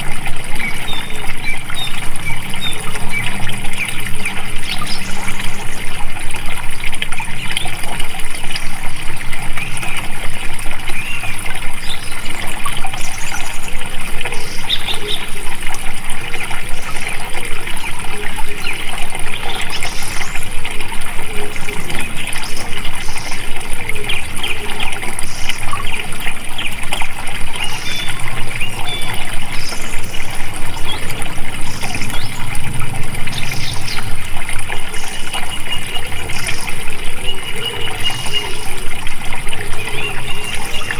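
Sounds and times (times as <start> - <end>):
water flowing and trickling: 0.0 - 40.9
small birds chirping: 0.5 - 6.1, 21.8 - 40.9.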